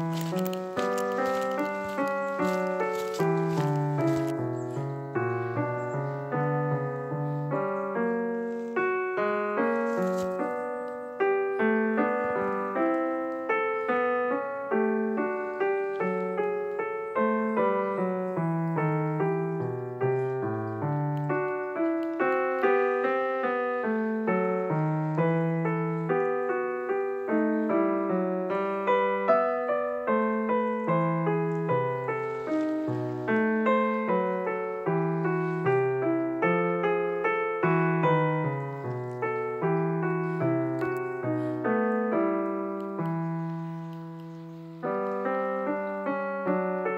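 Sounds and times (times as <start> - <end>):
solo piano music: 0.0 - 46.9.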